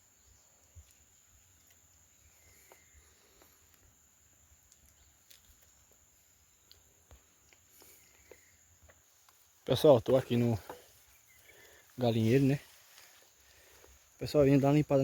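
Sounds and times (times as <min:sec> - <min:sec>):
faint clicks: 0:04.6 - 0:06.0.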